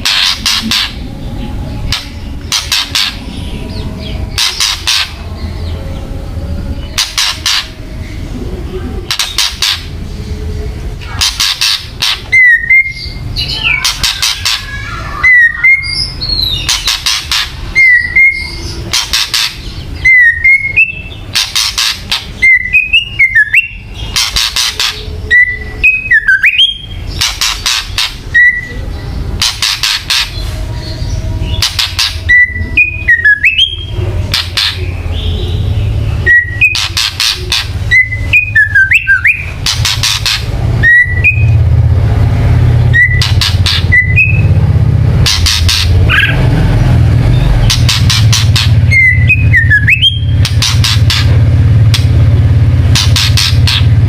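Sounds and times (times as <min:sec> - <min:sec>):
bird harsh rattling calls: 0:00.0 - 0:01.0, 0:01.8 - 0:05.2, 0:06.9 - 0:07.8, 0:09.0 - 0:10.0, 0:11.0 - 0:28.7, 0:29.4 - 0:41.6, 0:42.8 - 0:44.5, 0:45.2 - 0:46.5, 0:47.3 - 0:54.0
bird whistled notes: 0:11.1 - 0:28.8, 0:29.4 - 0:41.6, 0:42.9 - 0:44.5, 0:47.3 - 0:51.3.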